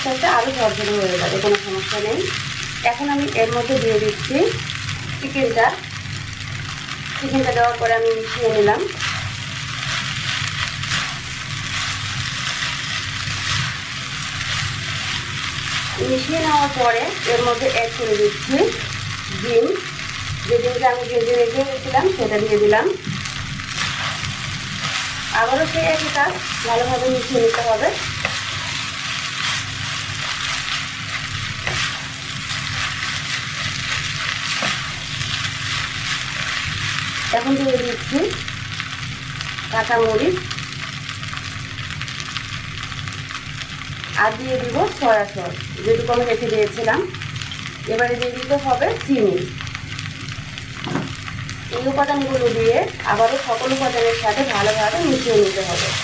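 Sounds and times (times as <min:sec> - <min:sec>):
rice sizzling in hot oil: 0:00.0 - 0:56.0
spatula scraping a pan: 0:08.9 - 0:16.0, 0:23.7 - 0:37.3.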